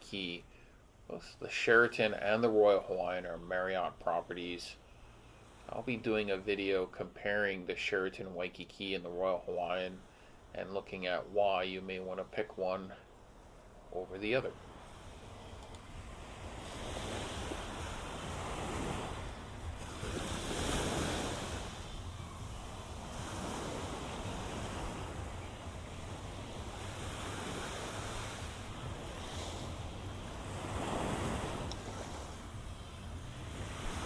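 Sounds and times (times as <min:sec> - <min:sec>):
small waves breaking on sand: 0:00.0 - 0:34.0
wind rumble on microphone: 0:14.6 - 0:34.0.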